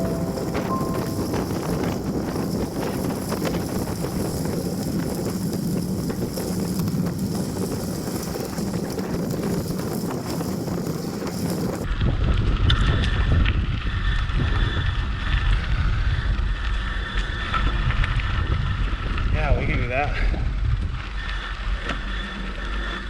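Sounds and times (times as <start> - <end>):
wind buffeting microphone: 0.0 - 22.6
heavy low wind rumble: 0.0 - 23.0
bicycle clicks and rattles: 1.7 - 13.8.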